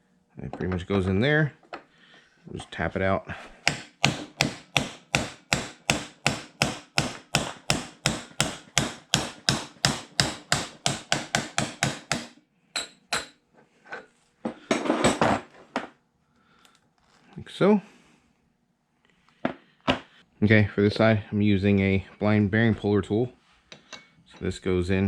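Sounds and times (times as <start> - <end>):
hammer tapping metal drift: 3.6 - 13.4.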